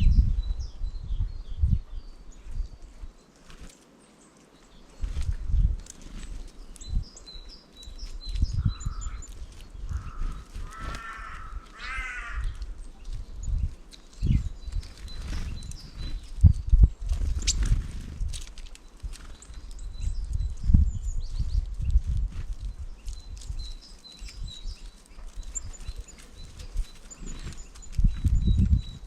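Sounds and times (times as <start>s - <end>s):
harsh crow-like calls: 9.9s - 12.8s
faint high bird chirps: 18.8s - 29.0s.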